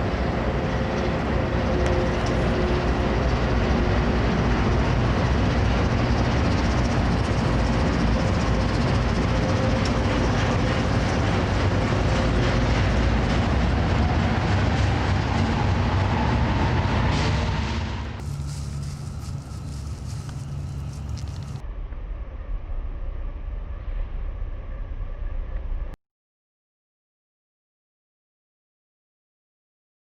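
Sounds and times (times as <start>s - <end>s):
train wheels rolling past: 0.0s - 21.6s.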